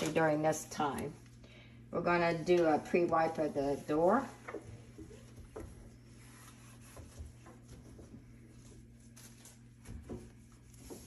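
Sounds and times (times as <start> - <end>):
low steady hum: 0.0 - 11.0
cloth wiping microwave door: 2.4 - 11.0.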